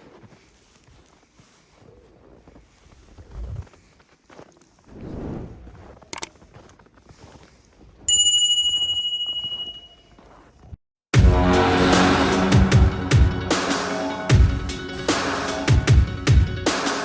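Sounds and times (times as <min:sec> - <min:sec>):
sharp click: 0:06.1 - 0:06.3
bell-like ding: 0:08.1 - 0:10.0
music: 0:11.2 - 0:17.0.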